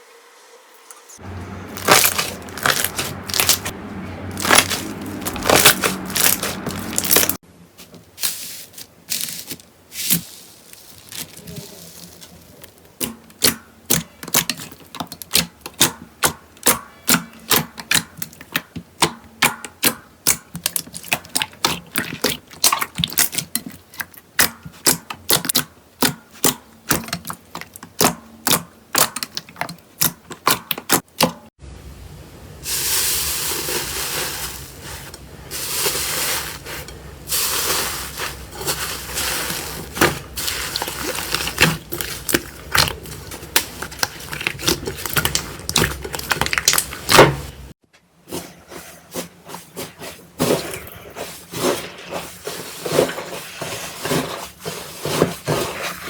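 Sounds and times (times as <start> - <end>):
slime hissing and crackling: 1.7 - 3.7, 4.3 - 7.4, 8.2 - 13.5, 32.6 - 47.7.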